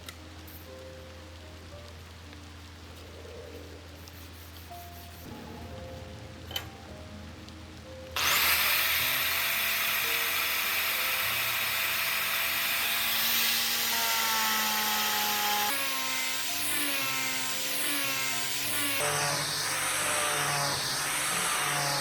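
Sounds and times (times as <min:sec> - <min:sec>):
background music: 0:00.0 - 0:22.0
power tool grinding: 0:08.2 - 0:22.0.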